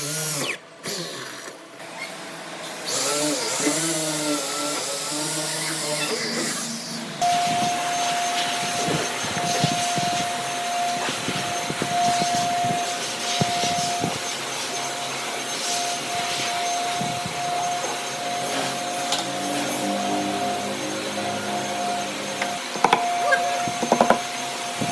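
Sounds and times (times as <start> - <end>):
power tool whining: 0.0 - 24.9.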